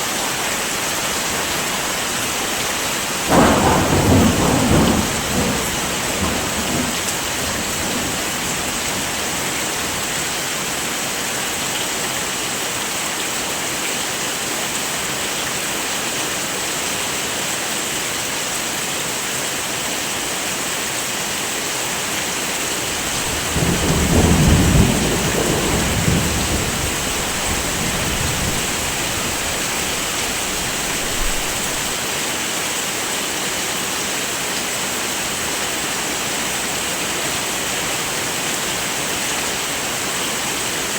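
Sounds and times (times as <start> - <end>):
heavy rain: 0.0 - 40.9
low roll of thunder: 3.3 - 10.0, 22.8 - 32.0.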